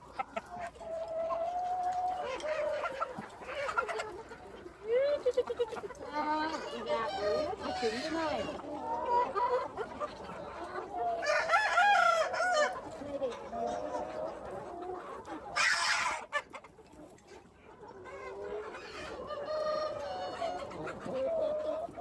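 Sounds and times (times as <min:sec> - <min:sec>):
chickens clucking: 0:00.0 - 0:22.0
rooster crowing: 0:11.2 - 0:12.7.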